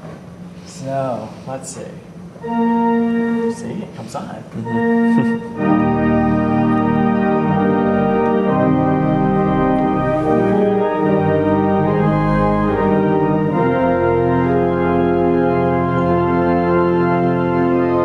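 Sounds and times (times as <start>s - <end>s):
pipe organ chords: 2.2s - 18.0s.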